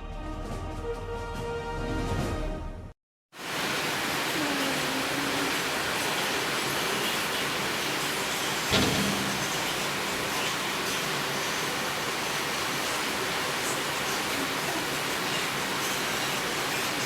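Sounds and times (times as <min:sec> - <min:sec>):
heavy rain hissing: 0:03.4 - 0:17.0
loud knock: 0:08.7 - 0:10.1.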